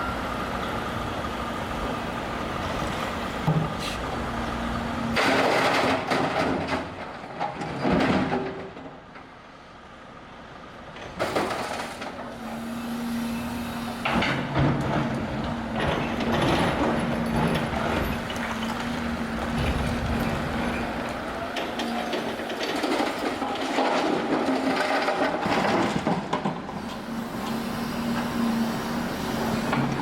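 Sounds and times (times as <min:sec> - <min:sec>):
heavy diesel engine running: 0:00.0 - 0:06.4, 0:09.4 - 0:30.0
rubble and timber crunching: 0:05.0 - 0:09.4, 0:14.1 - 0:26.9.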